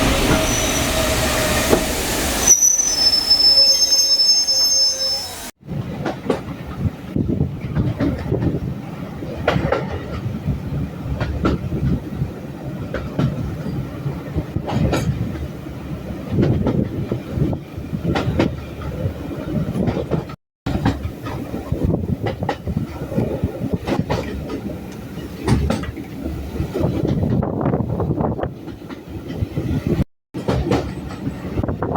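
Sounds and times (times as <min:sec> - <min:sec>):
wheels clacking over rail joints: 0:00.0 - 0:02.4, 0:16.3 - 0:27.5, 0:30.4 - 0:31.9
train rumbling: 0:00.0 - 0:31.9.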